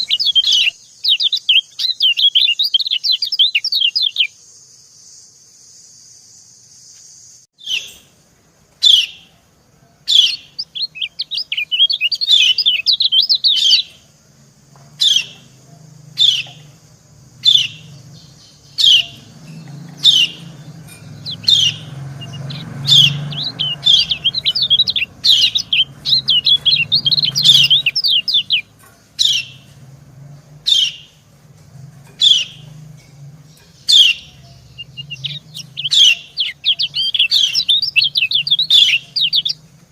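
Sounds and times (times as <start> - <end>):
rapid bird twittering: 0.0 - 4.4, 10.0 - 14.2, 15.0 - 31.3, 31.9 - 39.9
bird call notes: 15.0 - 29.8, 32.2 - 39.8.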